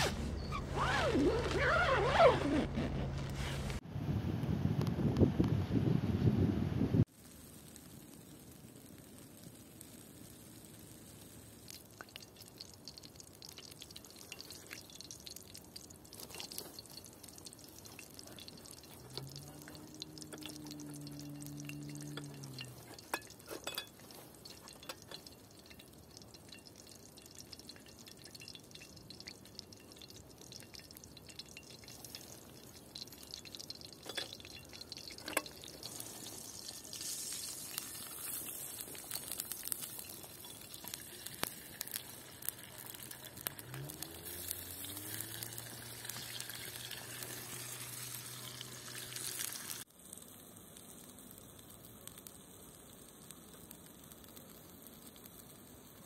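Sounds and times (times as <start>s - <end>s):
drips: 11.6s - 50.2s
low steady hum: 17.7s - 38.2s.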